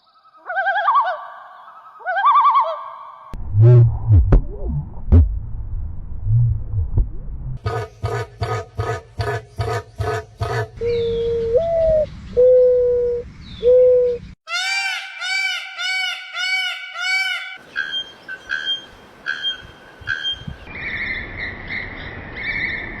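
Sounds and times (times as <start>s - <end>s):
arching bird calls: 7.6s - 11.6s, 14.5s - 20.7s
low bird hoots: 7.6s - 14.4s.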